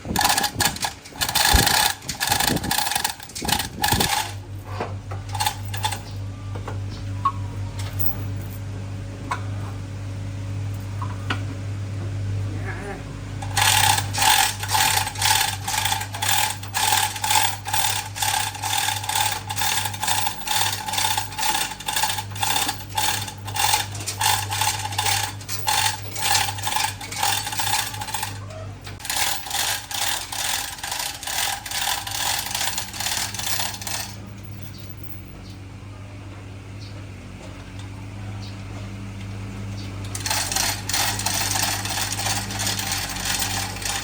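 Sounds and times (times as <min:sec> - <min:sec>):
steady low hum: 0:00.0 - 0:44.0
ratchet wrench clicking: 0:00.2 - 0:04.4, 0:13.4 - 0:28.3, 0:29.0 - 0:34.2, 0:40.2 - 0:44.0.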